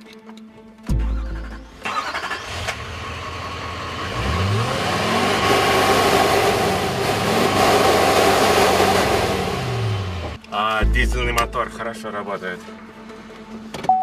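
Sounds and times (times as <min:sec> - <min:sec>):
diesel engine revving: 0:01.0 - 0:10.4.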